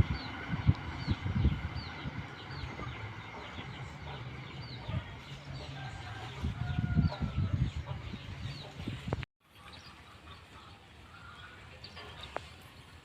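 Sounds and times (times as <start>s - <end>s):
wind rumbling on microphone: 0.0s - 9.3s
birds chirping: 0.0s - 13.0s.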